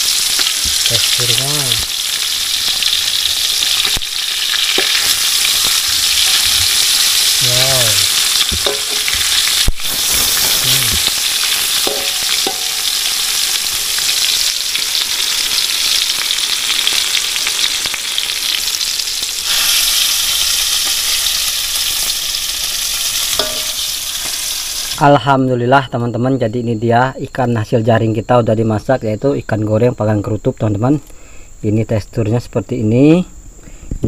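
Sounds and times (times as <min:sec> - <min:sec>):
fish sizzling in oil: 0:00.0 - 0:25.1.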